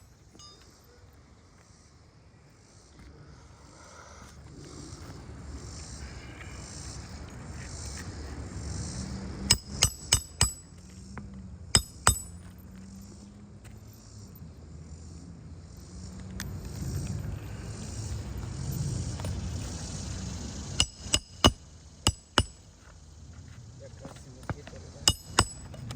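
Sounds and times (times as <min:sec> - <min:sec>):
hammer striking roofing nail: 0:09.5 - 0:10.7, 0:11.8 - 0:12.4, 0:20.8 - 0:22.6, 0:25.1 - 0:25.8.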